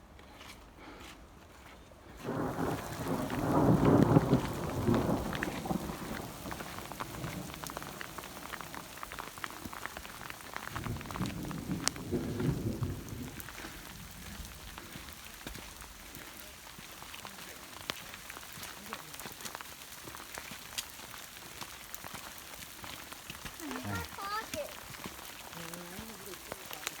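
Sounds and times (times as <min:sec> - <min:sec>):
rain drops ticking: 0:02.2 - 0:27.0
thunder rolling: 0:02.3 - 0:09.3, 0:10.4 - 0:14.9.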